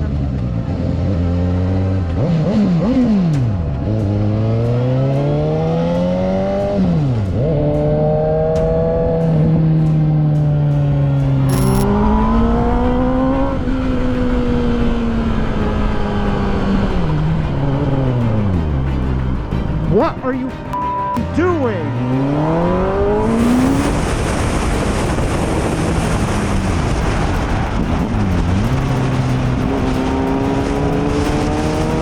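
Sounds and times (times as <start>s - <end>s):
motorcycle engine running: 22.0s - 32.0s.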